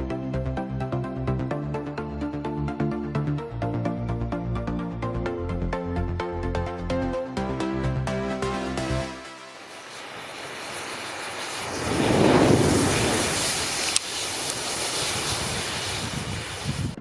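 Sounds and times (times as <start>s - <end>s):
matches flaring hiss: 8.9s - 17.0s.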